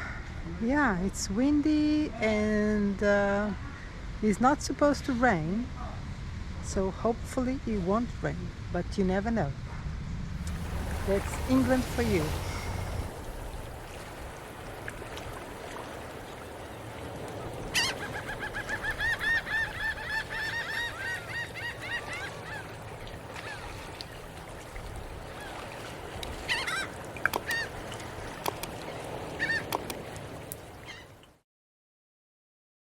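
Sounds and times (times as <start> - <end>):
bird calling: 17.2 - 24.4, 26.3 - 31.2.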